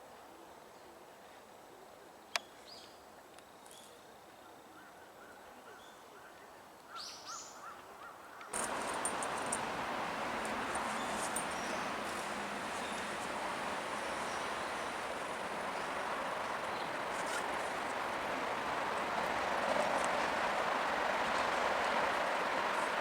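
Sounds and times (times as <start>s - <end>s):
faint bird calls: 4.7s - 23.0s
high ticks: 8.6s - 23.0s
loud steady rushing noise: 8.6s - 23.0s.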